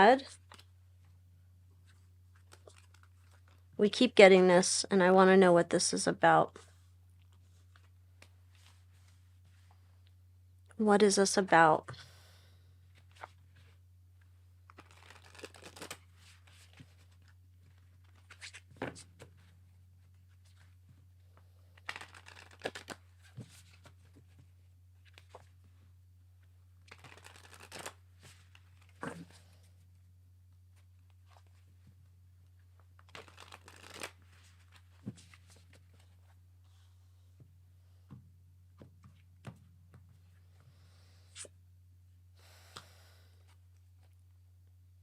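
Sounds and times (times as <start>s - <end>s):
cards shuffling: 1.8s - 3.6s, 14.6s - 19.5s, 21.8s - 25.5s, 26.8s - 29.5s, 33.0s - 36.3s.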